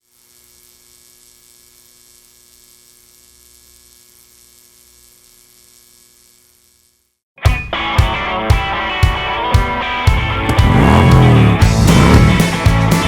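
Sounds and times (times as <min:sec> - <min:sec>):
electrical hum with hiss: 0:00.0 - 0:07.2
steady tones: 0:07.5 - 0:13.0.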